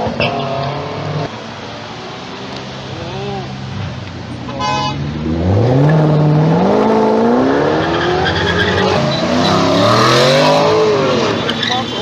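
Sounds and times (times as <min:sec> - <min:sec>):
car engine accelerating: 0:05.0 - 0:11.8.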